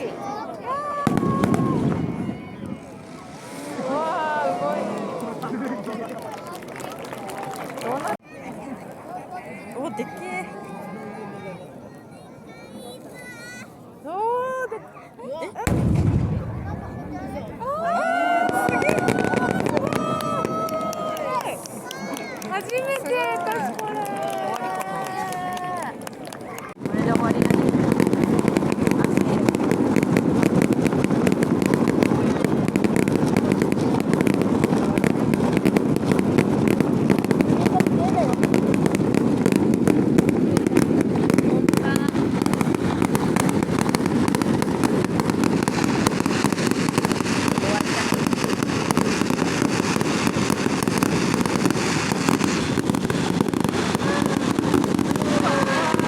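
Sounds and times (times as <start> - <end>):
low rumble of firework bursts: 0.0 - 5.9, 15.6 - 22.2, 26.8 - 56.0
fireworks crackling: 0.0 - 11.4, 15.3 - 56.0.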